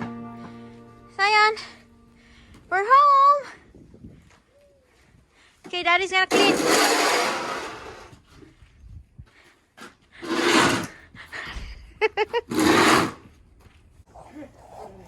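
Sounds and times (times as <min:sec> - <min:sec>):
snow shovel scraping snow: 0:06.3 - 0:08.2, 0:10.2 - 0:11.0, 0:12.5 - 0:13.2.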